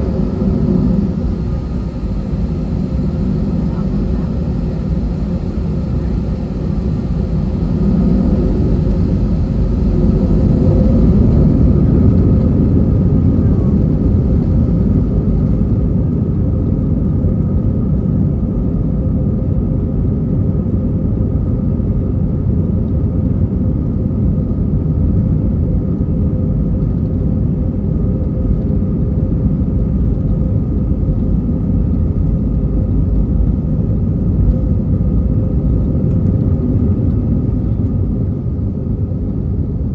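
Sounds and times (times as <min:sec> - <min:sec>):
steady cabin hum: 0:00.0 - 0:16.2
jet engine cabin rumble: 0:00.0 - 0:25.2, 0:26.0 - 0:39.9.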